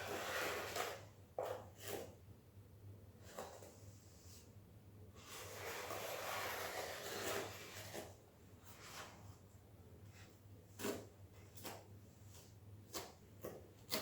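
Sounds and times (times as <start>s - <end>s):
scraper spreading tile adhesive: 0.0s - 2.1s, 5.2s - 9.2s.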